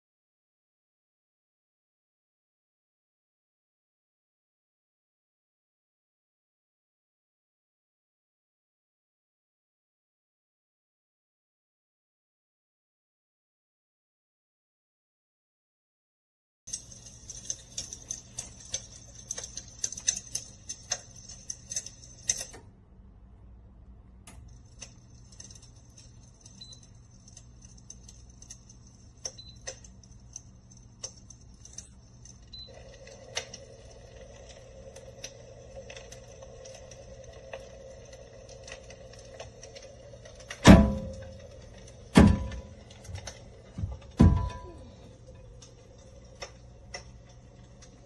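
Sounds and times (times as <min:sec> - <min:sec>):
low hum: 0:16.8 - 0:48.0
fire crackling sound effect: 0:24.6 - 0:43.8, 0:44.9 - 0:48.0
steady tone: 0:40.3 - 0:45.2.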